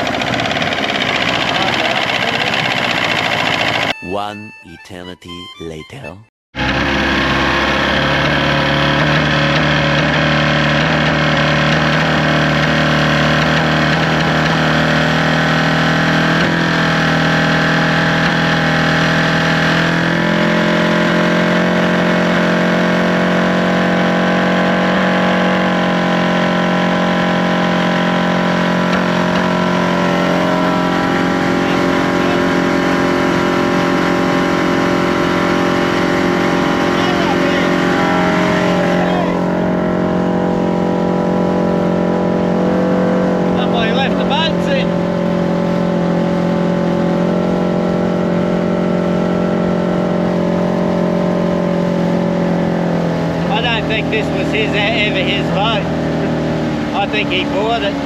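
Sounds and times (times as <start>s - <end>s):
outboard motor idling: 0.0s - 4.0s, 6.6s - 58.0s.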